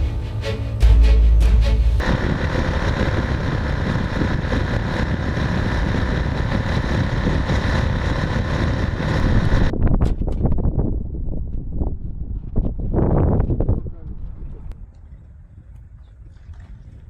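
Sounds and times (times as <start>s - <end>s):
road and wind rush: 0.0s - 13.2s.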